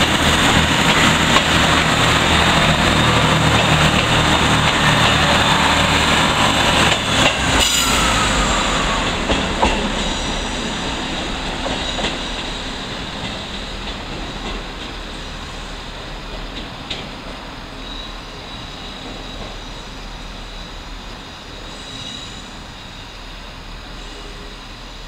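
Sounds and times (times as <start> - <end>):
wheels clicking over rail joints: 0.0 - 7.7
diesel train engines and wheels: 0.0 - 25.0.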